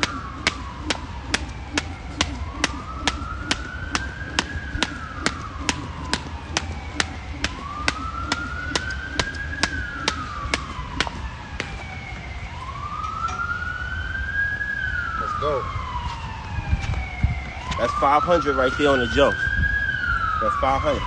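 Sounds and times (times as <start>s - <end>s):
jump rope slapping ground: 0.0s - 12.5s
siren wailing: 0.0s - 21.0s.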